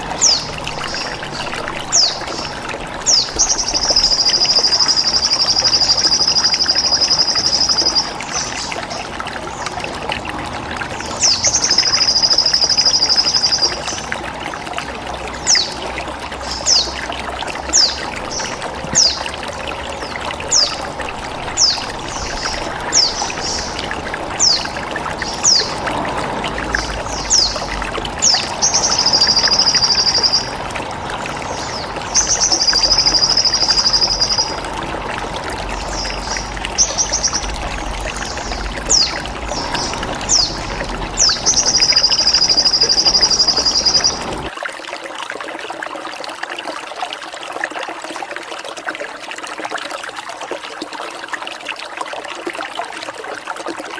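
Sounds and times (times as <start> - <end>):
trickling water: 0.0 - 53.9
bird chirping: 35.8 - 44.5.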